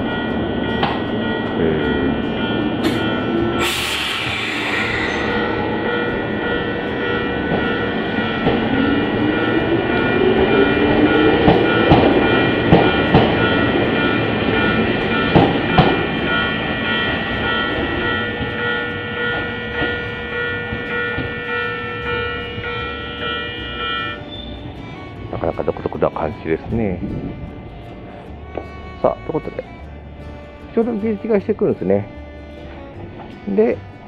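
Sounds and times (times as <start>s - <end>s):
electric train motor whine: 0.0s - 30.8s
background music held notes: 0.0s - 34.0s
wheels clacking over rail joints: 5.2s - 26.2s.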